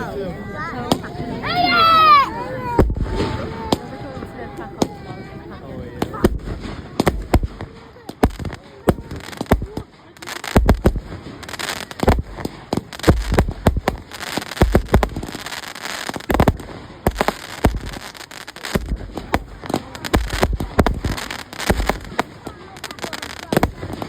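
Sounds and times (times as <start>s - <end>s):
fireworks bangs and crackling: 0.8s - 24.0s
deep booming thuds: 10.6s - 15.5s, 16.2s - 18.1s, 18.8s - 22.5s.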